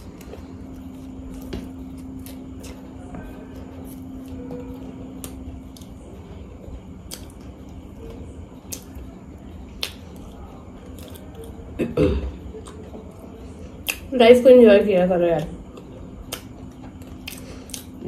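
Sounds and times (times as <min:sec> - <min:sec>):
person chewing: 0:07.0 - 0:14.1, 0:15.7 - 0:18.0.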